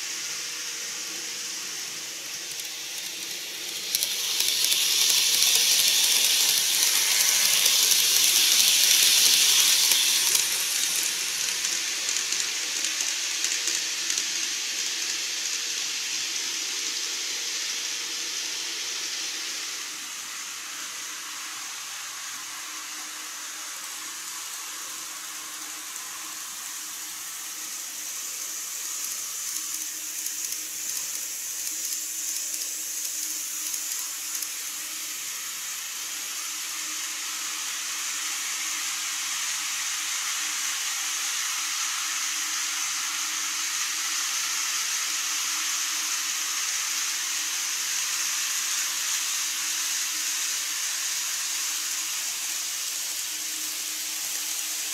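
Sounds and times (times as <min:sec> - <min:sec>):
model train whirring hiss: 0:00.0 - 0:54.9
train wheels clicking: 0:01.0 - 0:17.2, 0:23.9 - 0:39.4.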